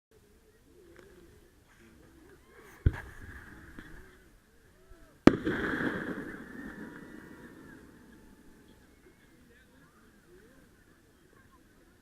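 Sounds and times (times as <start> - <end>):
fireworks bangs: 2.8 - 4.1, 5.2 - 8.8
fireworks crackle: 5.2 - 8.1.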